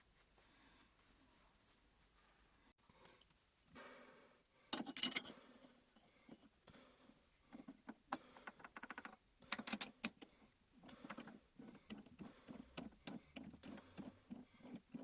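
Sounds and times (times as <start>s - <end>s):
faint rustling: 0.0s - 2.7s.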